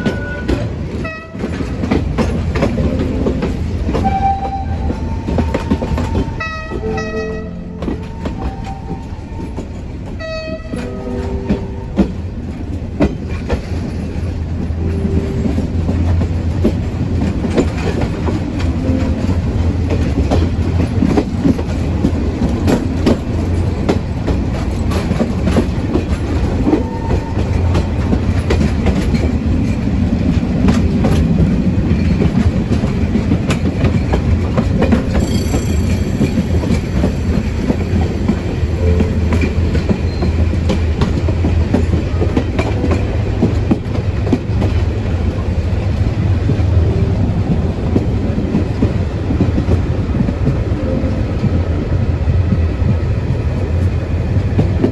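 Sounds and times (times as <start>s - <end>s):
locomotive horn blast: 0.0s - 1.7s, 3.9s - 12.3s
train wheels clicking over rail joints: 0.0s - 50.8s.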